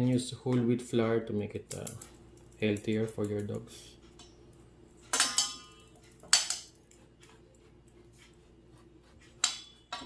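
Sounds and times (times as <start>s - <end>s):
utensils knocking against a bowl: 5.1s - 6.8s.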